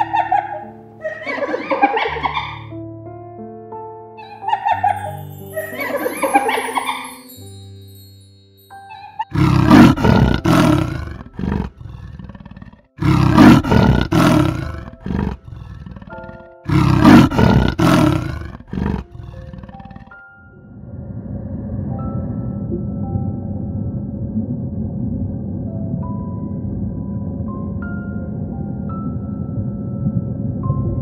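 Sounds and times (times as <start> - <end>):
quiet background music: 0.0 - 31.0
big cat roaring: 9.3 - 22.1.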